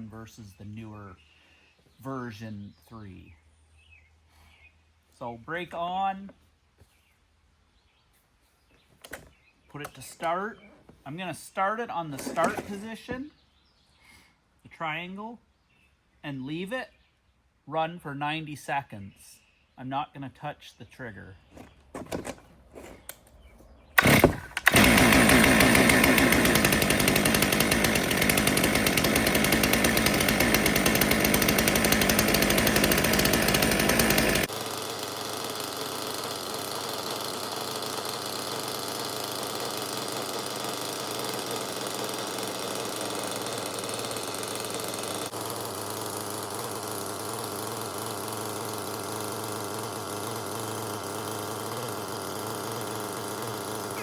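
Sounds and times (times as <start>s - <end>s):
chainsaw running: 12.1s - 12.9s, 21.6s - 23.2s, 23.9s - 54.0s.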